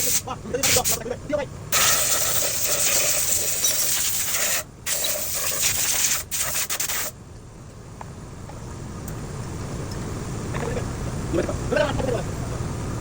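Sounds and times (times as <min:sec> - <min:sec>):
loud steady hiss: 0:00.0 - 0:07.2.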